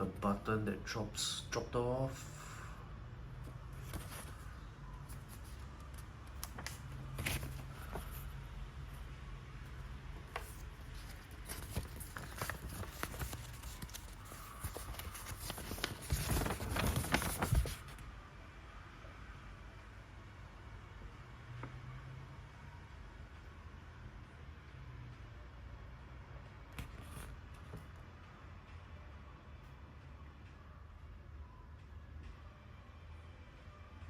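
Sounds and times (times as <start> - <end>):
paper rustling: 3.8 - 8.3, 10.3 - 18.0.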